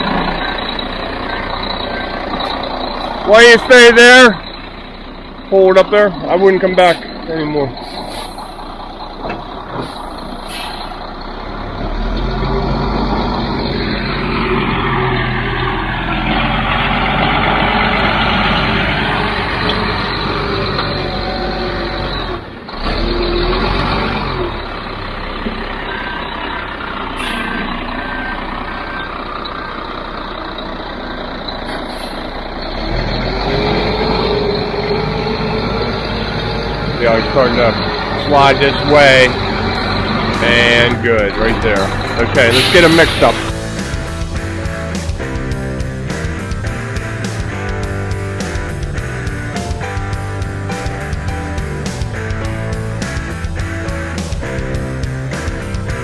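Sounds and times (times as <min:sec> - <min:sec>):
reversing alarm beeping: 0:00.0 - 0:11.0, 0:25.7 - 0:43.6
truck diesel engine revving: 0:00.0 - 0:56.0
air brakes hissing: 0:06.8 - 0:08.9, 0:09.7 - 0:11.1, 0:27.0 - 0:28.3, 0:31.5 - 0:32.8, 0:34.1 - 0:44.2.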